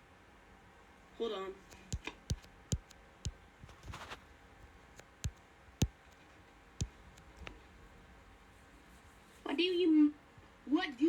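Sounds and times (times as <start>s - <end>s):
sharp single clicks: 1.7s - 4.2s.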